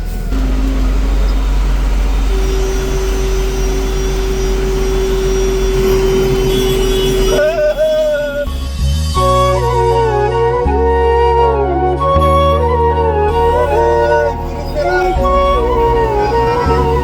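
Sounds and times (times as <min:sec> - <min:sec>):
truck engine and road noise: 0:00.0 - 0:10.2, 0:12.6 - 0:17.0
steady held tone: 0:00.3 - 0:09.8, 0:13.3 - 0:17.0
flute melody: 0:02.2 - 0:17.0.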